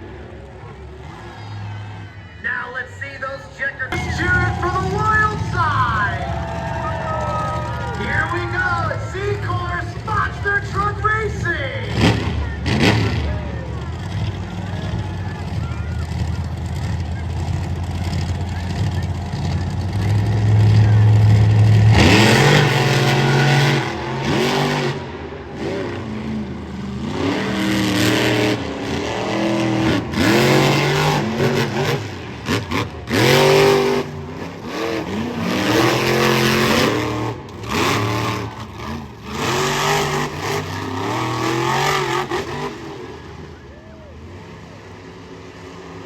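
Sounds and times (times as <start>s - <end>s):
truck engine revving hard: 3.9s - 46.0s.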